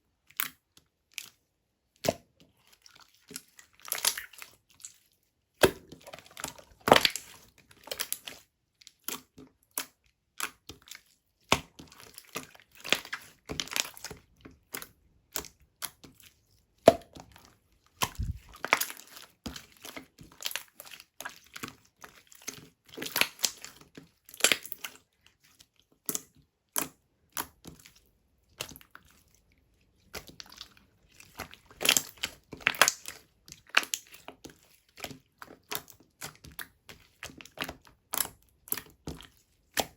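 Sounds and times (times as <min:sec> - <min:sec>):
slime crackling and popping: 0:05.6 - 0:08.2, 0:23.0 - 0:23.6, 0:30.2 - 0:34.2.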